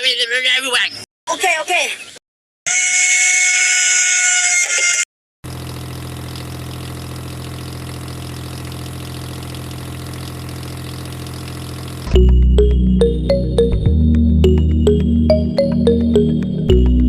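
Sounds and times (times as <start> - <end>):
motor humming: 5.5 - 12.3
loud music: 12.2 - 17.0.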